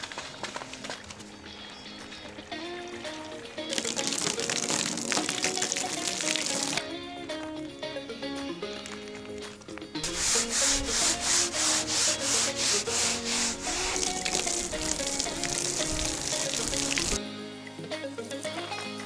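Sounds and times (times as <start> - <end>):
background music: 1.0 - 19.0
pad scrubbing plastic: 10.0 - 17.2.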